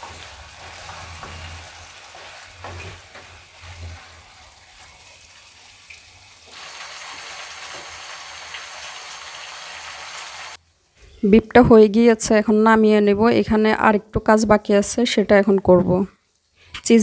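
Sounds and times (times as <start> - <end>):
wooden spatula scraping pan: 0.0 - 5.2
food sizzling in a frying pan: 0.0 - 10.6.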